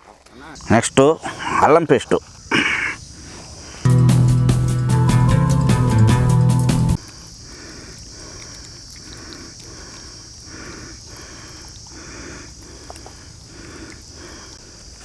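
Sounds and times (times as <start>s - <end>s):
crickets chirring: 0.3s - 3.9s, 7.0s - 15.0s.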